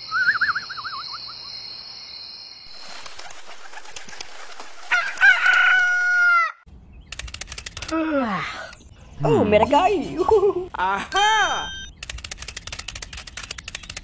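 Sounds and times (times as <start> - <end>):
wings flapping: 2.7 - 6.0, 7.1 - 8.0, 11.9 - 14.0
rooster crowing: 4.9 - 6.6
sharp clicks: 7.1 - 8.0, 11.7 - 14.0.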